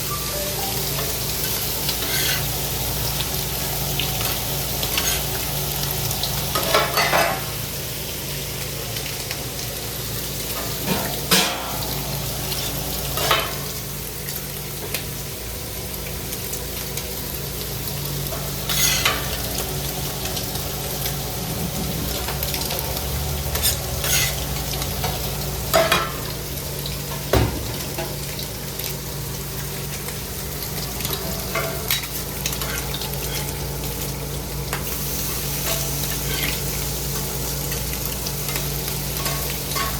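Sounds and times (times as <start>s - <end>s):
food sizzling: 0.0s - 39.9s
metal utensil scraping: 2.0s - 2.5s, 18.7s - 19.2s, 23.5s - 24.5s
low hum: 20.6s - 23.3s.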